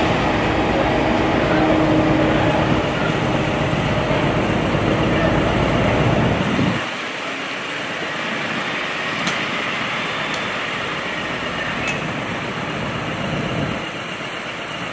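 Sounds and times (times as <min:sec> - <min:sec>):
vehicle engine idling: 0:00.0 - 0:06.8, 0:09.6 - 0:14.9.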